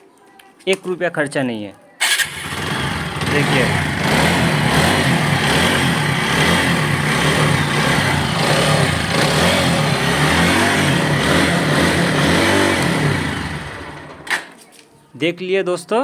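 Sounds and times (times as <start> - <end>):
motorcycle engine idling: 2.0 - 14.3.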